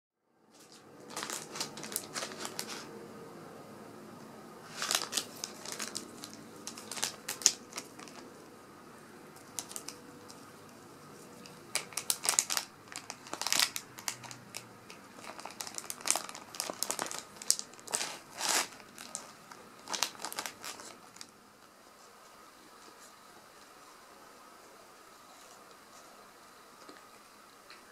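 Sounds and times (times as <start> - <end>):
plastic pouch crinkling: 0.5 - 2.9, 4.6 - 8.4, 9.4 - 10.4, 11.4 - 21.3.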